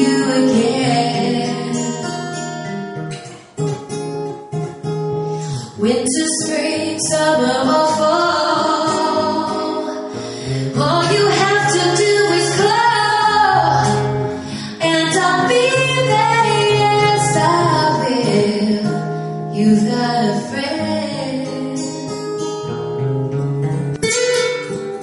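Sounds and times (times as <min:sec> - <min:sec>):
woman singing: 0:00.0 - 0:02.8, 0:05.5 - 0:22.4
acoustic guitar strumming: 0:00.0 - 0:25.0.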